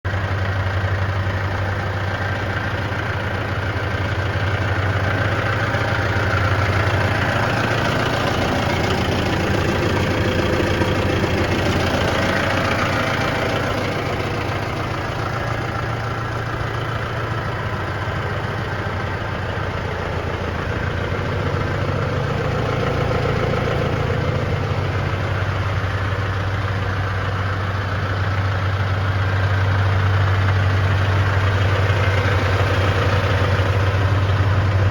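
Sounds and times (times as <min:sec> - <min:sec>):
tractor diesel engine idling: 0:00.0 - 0:34.9.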